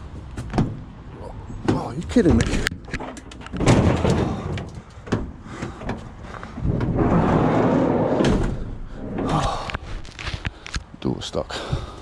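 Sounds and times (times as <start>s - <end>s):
van door rattling: 0.3s - 9.2s
door scraping rattle: 1.6s - 10.4s.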